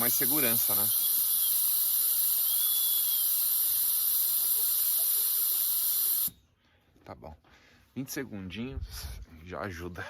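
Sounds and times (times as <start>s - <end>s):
air hissing from tyre valve: 0.0s - 6.4s.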